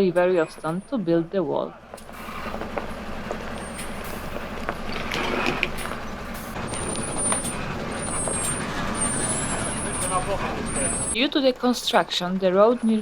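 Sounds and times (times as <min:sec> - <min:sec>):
heavy truck engine running: 0:00.0 - 0:13.0.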